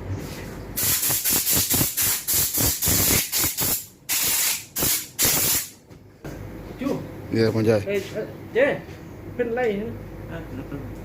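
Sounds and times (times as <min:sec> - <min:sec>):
pressurized spray hissing: 0:00.8 - 0:05.7.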